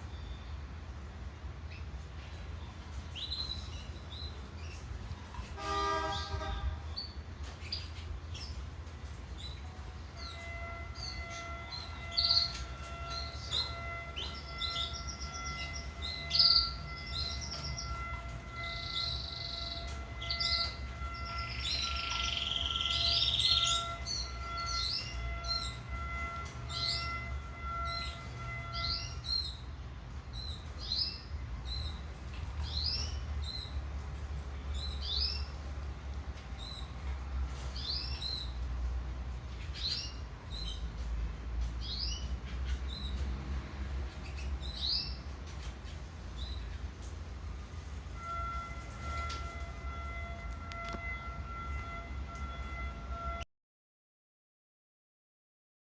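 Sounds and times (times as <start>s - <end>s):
canary singing: 9.4s - 29.7s, 44.1s - 46.7s.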